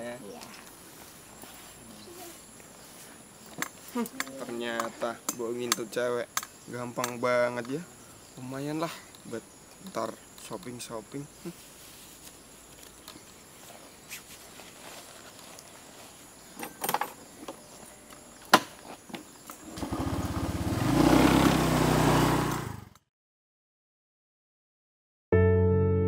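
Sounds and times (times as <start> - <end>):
motorcycle engine revving: 19.6 - 23.0.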